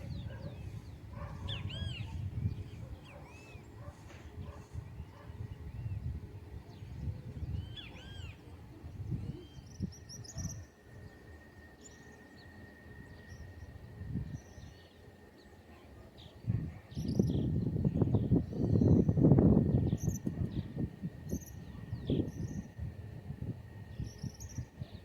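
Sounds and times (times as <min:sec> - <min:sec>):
birds chirping: 0:00.0 - 0:17.5.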